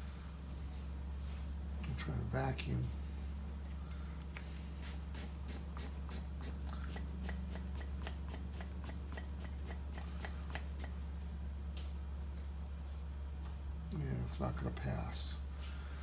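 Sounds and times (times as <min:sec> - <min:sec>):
steady low hum: 0:00.0 - 0:16.0
hand vacuum pump strokes: 0:04.8 - 0:11.0.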